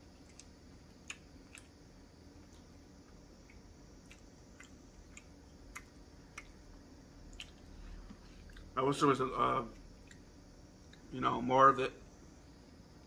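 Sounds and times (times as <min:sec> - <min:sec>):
chewing with wet mouth clicks: 0:00.2 - 0:01.8, 0:02.4 - 0:06.6, 0:07.3 - 0:07.7, 0:09.7 - 0:11.1.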